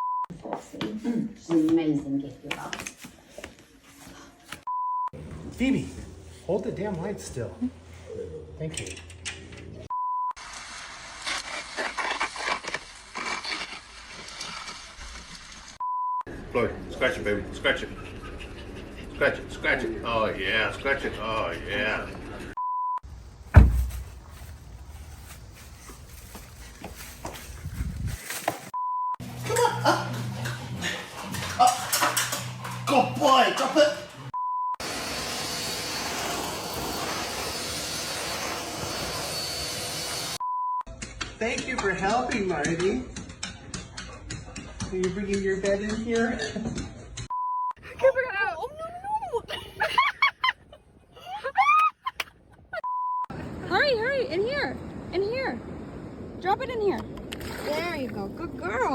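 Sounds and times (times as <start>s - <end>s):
short steady beep: 0.0s - 0.3s, 4.7s - 5.2s, 47.3s - 47.8s, 52.8s - 53.3s.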